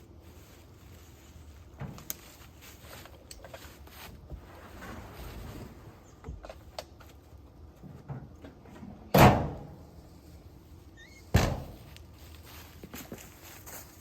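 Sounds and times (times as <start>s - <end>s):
door slamming shut: 9.1s - 9.7s, 11.3s - 11.8s.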